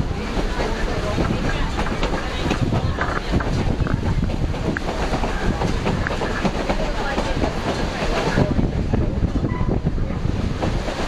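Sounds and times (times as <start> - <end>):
river water: 0.0 - 11.0
train rumble with wheel clatter: 0.0 - 11.0
wind rushing: 0.0 - 11.0.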